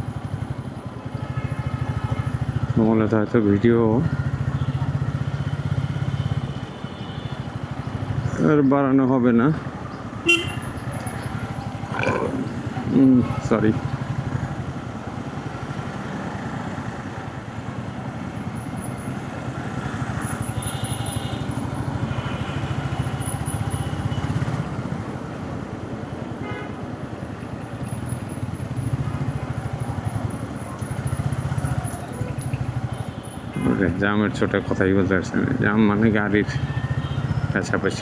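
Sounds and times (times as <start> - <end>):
rumble of traffic: 0.0 - 38.0
motorcycle engine running: 4.0 - 8.3, 9.6 - 26.0, 27.2 - 33.6.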